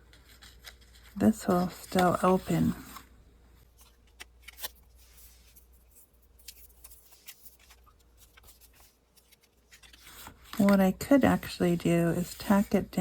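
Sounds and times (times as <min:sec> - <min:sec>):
paper and lace handling rustles: 0:00.0 - 0:13.0.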